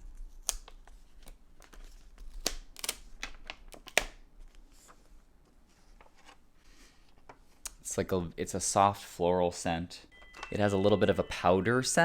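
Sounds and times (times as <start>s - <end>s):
magazine paper crackling and rustling: 0.7s - 7.0s.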